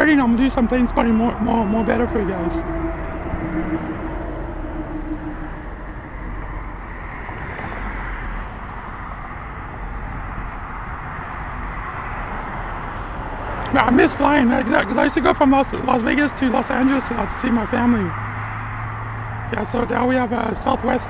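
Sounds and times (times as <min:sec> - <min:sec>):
low hum: 0:00.0 - 0:09.4
vehicle engine rumble: 0:00.0 - 0:21.0.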